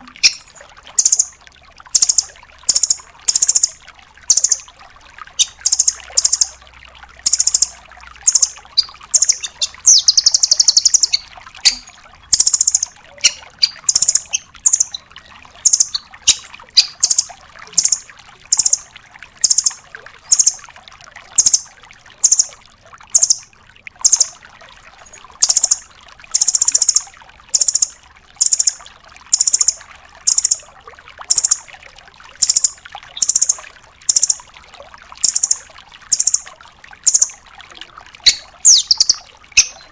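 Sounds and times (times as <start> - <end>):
bird calling high sharp notes: 0.2 - 1.3, 5.4 - 6.5, 7.2 - 18.8, 37.1 - 37.4, 38.2 - 39.9
bird trill: 0.2 - 1.3, 2.0 - 4.6, 5.4 - 6.5, 7.2 - 20.6, 21.4 - 21.6, 22.2 - 22.5, 23.1 - 23.4, 24.0 - 24.3, 25.4 - 30.6, 31.3 - 31.6, 32.4 - 34.4, 35.2 - 37.4, 38.2 - 39.9.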